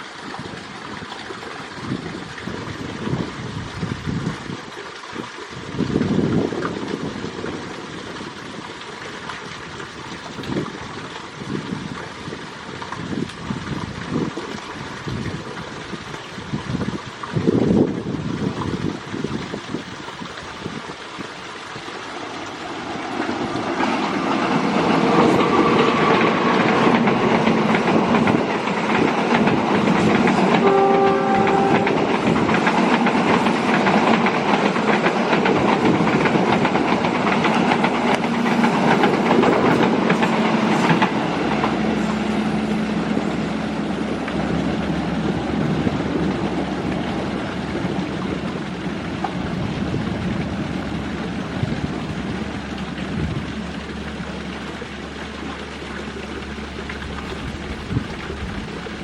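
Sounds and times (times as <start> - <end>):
passenger train running past: 21.6 - 53.8
train wheels clattering on rails: 22.1 - 51.4
train horn blast: 30.0 - 32.7.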